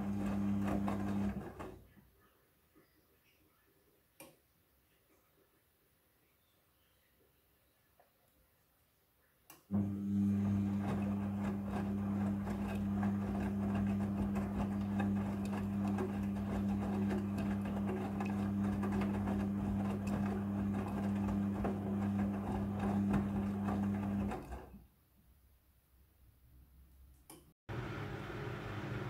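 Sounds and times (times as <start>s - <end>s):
washing machine humming and rattling: 0.0s - 1.9s, 9.7s - 24.8s, 27.7s - 29.0s.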